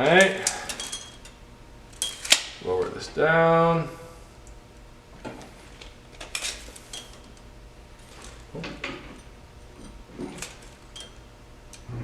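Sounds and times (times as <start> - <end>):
metal parts knocking and rattling: 0.0 - 3.0, 5.2 - 11.3
low steady hum: 0.0 - 12.0.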